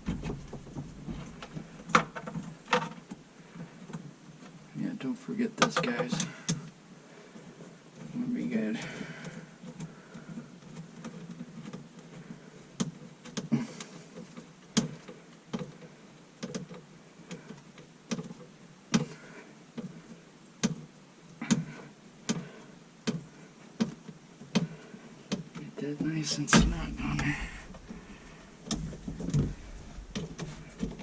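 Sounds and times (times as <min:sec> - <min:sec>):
sharp clicks and light knocks: 0:05.6 - 0:06.8, 0:12.8 - 0:19.1, 0:20.6 - 0:24.7, 0:26.4 - 0:31.0.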